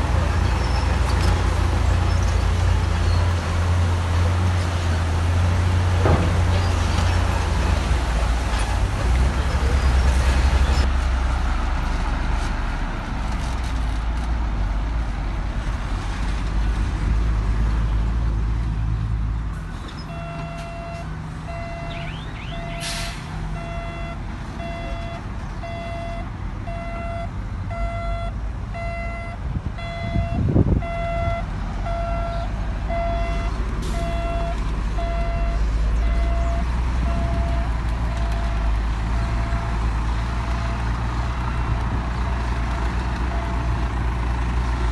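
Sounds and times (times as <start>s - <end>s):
diesel engine rumble: 0.0s - 44.9s
reversing alarm beeping: 20.1s - 39.8s.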